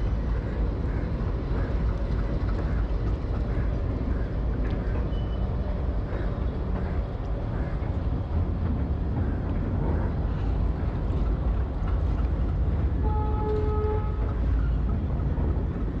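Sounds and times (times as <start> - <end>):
vehicle horn: 13.0 - 14.3.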